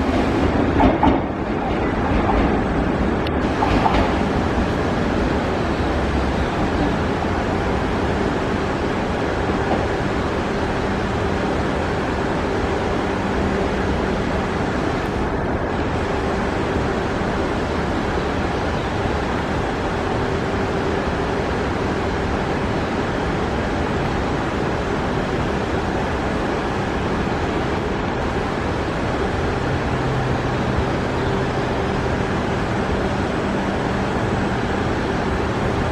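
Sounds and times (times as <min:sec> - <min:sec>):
electric train rumbling: 0:00.0 - 0:35.9.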